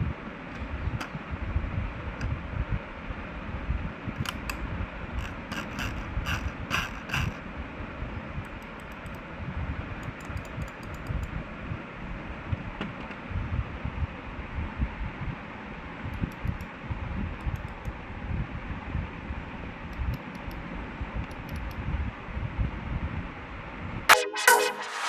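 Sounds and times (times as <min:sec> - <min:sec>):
computer mouse clicks: 0:04.2 - 0:04.6, 0:05.2 - 0:07.4, 0:08.4 - 0:09.3, 0:10.0 - 0:11.4, 0:16.1 - 0:16.8, 0:17.4 - 0:18.0, 0:19.9 - 0:21.8.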